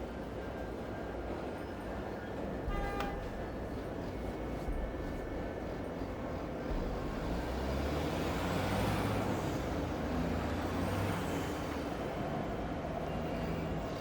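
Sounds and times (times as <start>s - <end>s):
vehicle low rumble: 2.2s - 10.8s.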